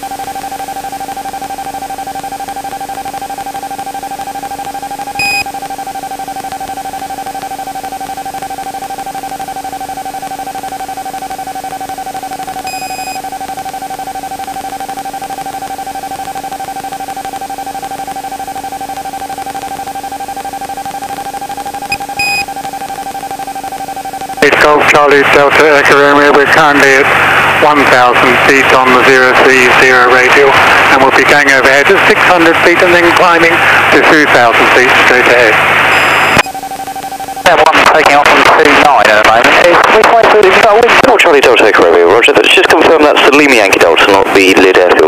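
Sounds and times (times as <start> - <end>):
steady radio whine: 0.0 - 45.0
short electronic beeps: 0.4 - 24.5, 35.8 - 38.8.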